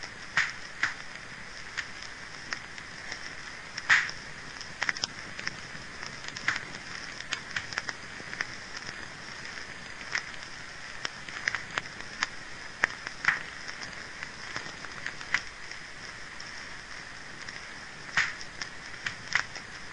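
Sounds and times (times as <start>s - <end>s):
wood fire crackling: 0.0s - 19.9s.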